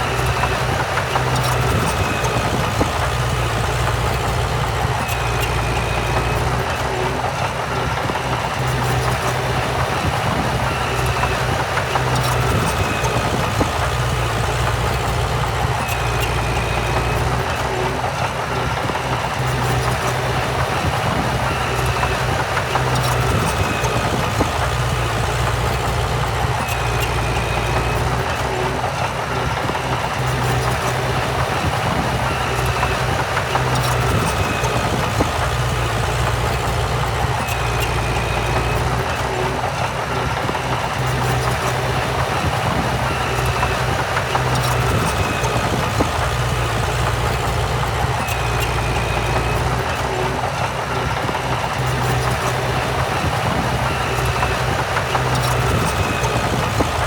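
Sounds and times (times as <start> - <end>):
diesel machinery running: 0.0 - 57.0.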